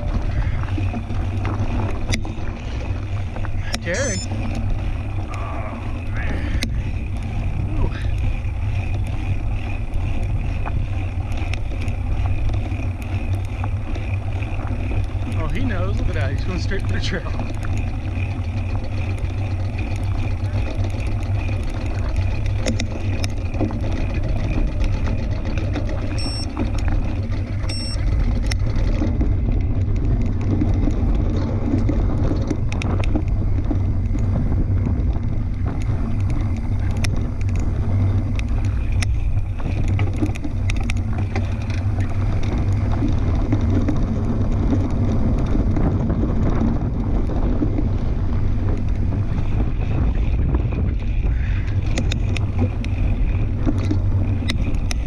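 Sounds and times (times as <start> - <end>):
short clicks and rattles: 0.0 - 34.9
tyres rolling on dirt: 0.0 - 55.0
wind buffeting microphone: 0.0 - 55.0.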